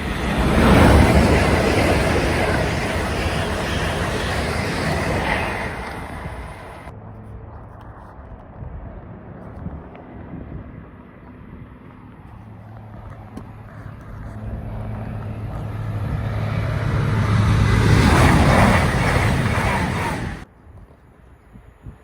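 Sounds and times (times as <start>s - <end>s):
train passing at speed: 0.0s - 7.0s, 12.7s - 20.5s.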